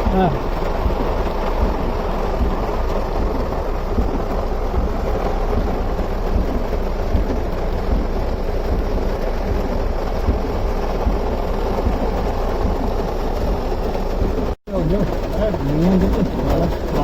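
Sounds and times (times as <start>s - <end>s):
heavy rain hissing: 0.0s - 17.0s
low rumble: 0.0s - 17.0s.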